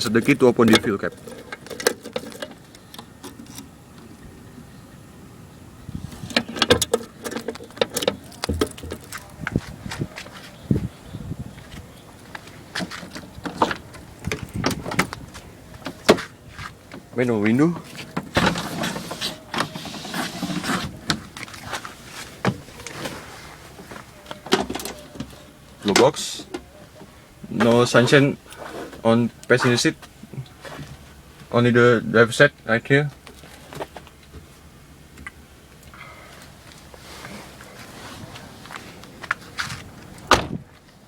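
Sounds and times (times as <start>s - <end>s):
window winder scraping and clicking: 18.0s - 21.2s.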